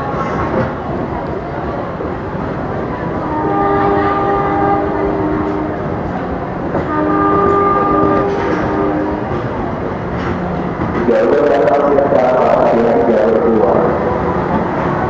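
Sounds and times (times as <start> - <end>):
train rumbling: 0.0 - 15.0
train air horn blasts: 3.2 - 6.1, 6.8 - 9.5.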